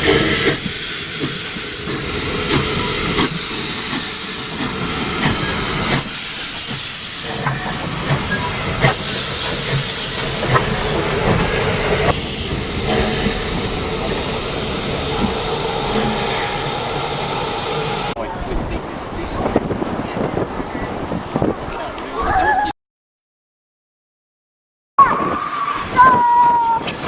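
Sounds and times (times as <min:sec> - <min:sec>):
steam locomotive hissing steam: 0:00.0 - 0:18.2
train rumbling: 0:00.0 - 0:22.4.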